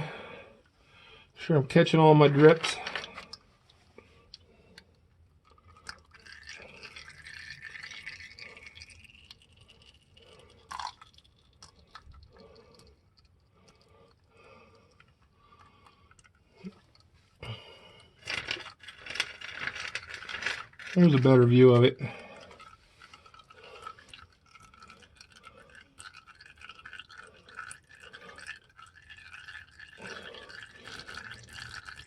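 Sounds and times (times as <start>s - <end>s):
clattering handling noise: 2.3s - 3.4s, 18.2s - 21.4s
oil trickling into drain pan: 4.4s - 17.6s, 20.0s - 32.0s.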